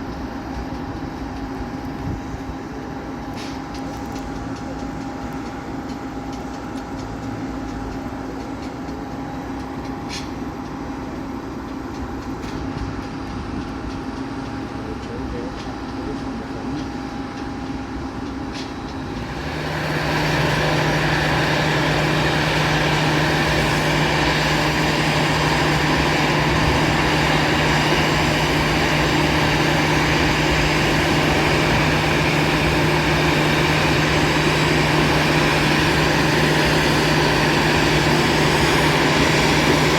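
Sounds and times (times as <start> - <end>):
jet engines humming: 16.2 - 39.9.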